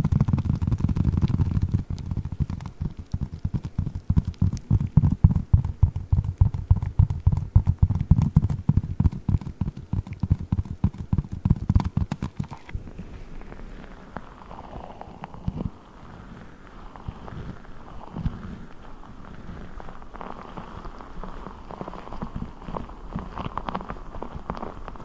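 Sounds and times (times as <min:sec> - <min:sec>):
water-bead ball squished and tapped: 0:00.0 - 0:12.8.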